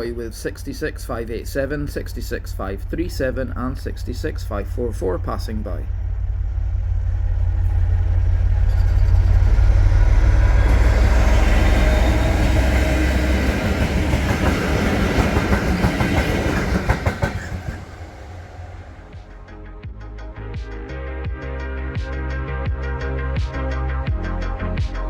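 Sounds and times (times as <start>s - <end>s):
diesel locomotive engine rumble: 0.0s - 19.8s
wheels clicking over rail joints: 7.2s - 18.8s.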